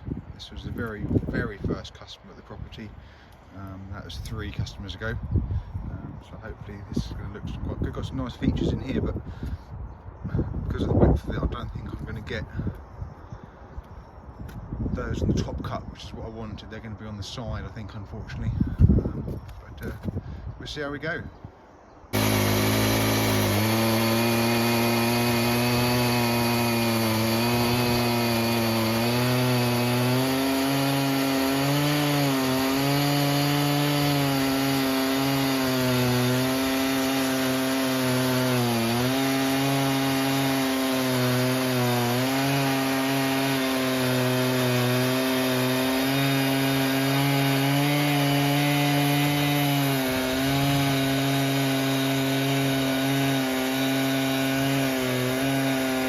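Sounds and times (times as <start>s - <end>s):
chainsaw cutting log at full throttle: 22.1s - 56.0s.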